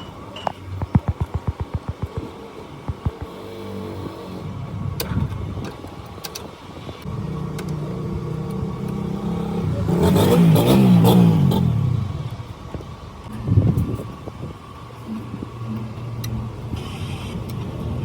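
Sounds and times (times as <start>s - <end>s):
vehicle engine revving: 0.7s - 4.9s, 7.0s - 12.8s.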